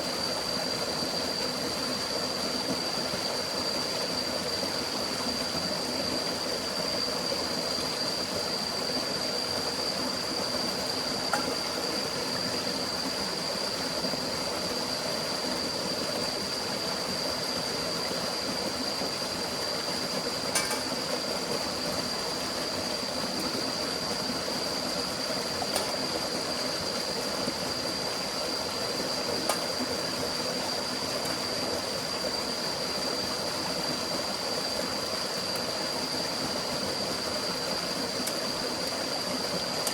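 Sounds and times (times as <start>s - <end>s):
forest stream rushing: 0.0s - 39.9s
thin high-pitched tone: 20.5s - 20.9s.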